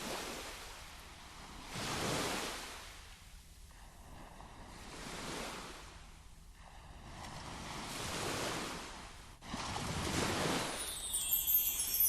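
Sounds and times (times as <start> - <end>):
surf washing in: 6.6 - 12.0.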